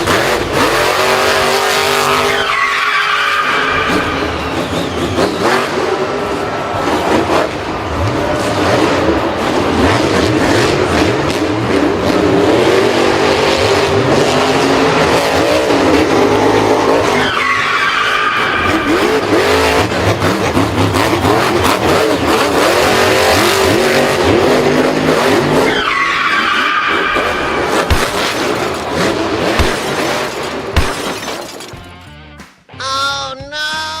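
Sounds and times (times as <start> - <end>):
racing car engines revving: 0.0 - 31.7.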